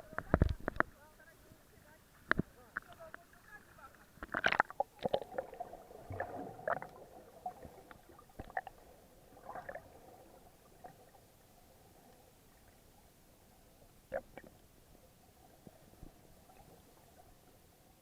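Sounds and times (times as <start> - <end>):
muffled underwater clicks: 0.0 - 1.0, 2.2 - 3.4, 4.2 - 5.5, 14.1 - 14.6
faint steady hum: 0.0 - 18.0
low hiss: 0.0 - 18.0.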